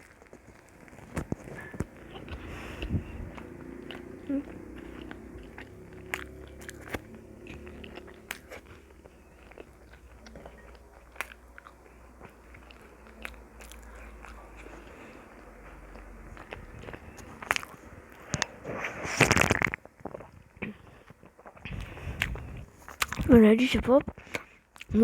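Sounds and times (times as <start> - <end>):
person chewing food: 0.0 - 23.3, 24.1 - 25.0
wet mouth clicks: 1.1 - 11.7.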